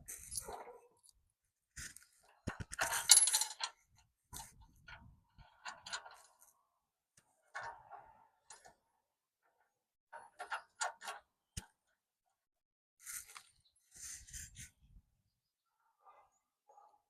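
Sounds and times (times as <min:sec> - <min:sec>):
metal clicks of bolts and tools: 0:02.5 - 0:03.8.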